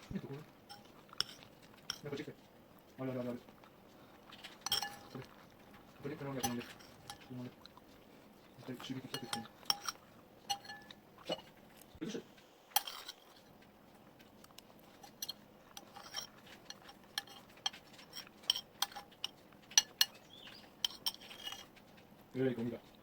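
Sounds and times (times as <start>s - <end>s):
metal utensils clinking: 0.0s - 2.3s, 4.3s - 7.6s, 8.6s - 11.6s, 12.8s - 13.4s, 14.8s - 21.8s.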